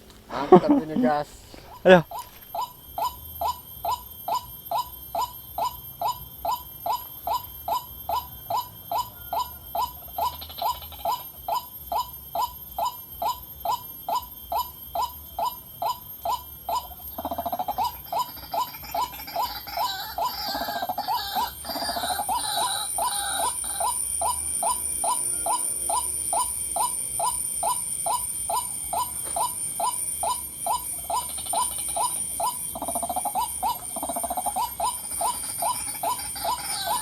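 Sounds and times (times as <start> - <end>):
waterhen calling: 16.9 - 37.0.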